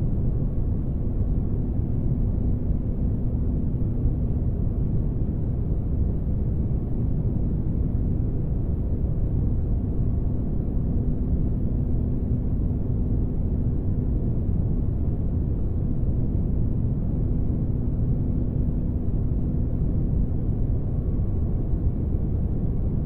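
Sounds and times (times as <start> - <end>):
faint constant hum: 0.0 - 23.0
low rumbling engine drone: 0.0 - 23.0.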